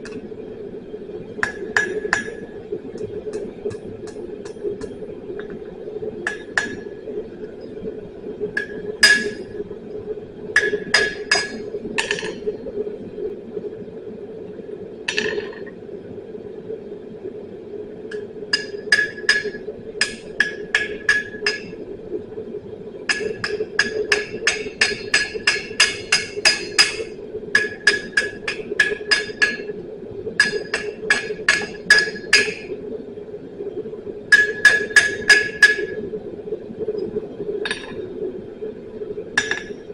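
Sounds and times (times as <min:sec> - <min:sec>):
hammer striking steel on anvil: 0:34.4 - 0:35.9, 0:39.4 - 0:39.7.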